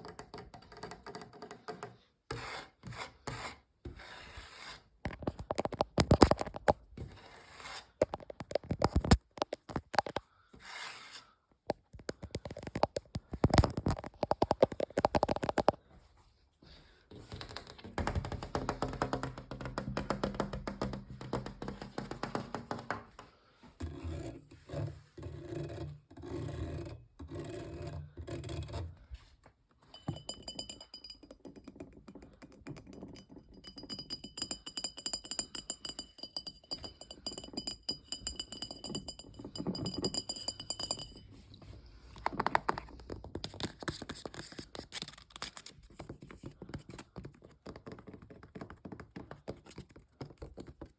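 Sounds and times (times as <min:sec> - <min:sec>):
fingers tapping on objects: 0:00.0 - 0:02.0, 0:05.1 - 0:06.8, 0:11.7 - 0:15.8, 0:17.3 - 0:23.3, 0:29.9 - 0:41.2, 0:42.2 - 0:50.9.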